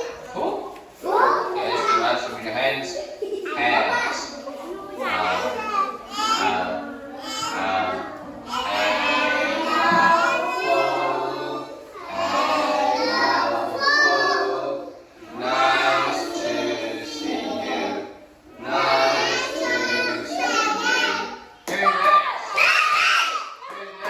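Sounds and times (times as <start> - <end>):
children singing together: 3.5 - 21.6.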